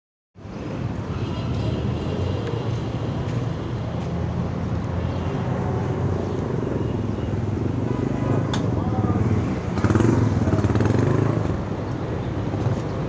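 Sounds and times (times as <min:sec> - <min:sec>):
road traffic rumble: 0:00.4 - 0:13.0.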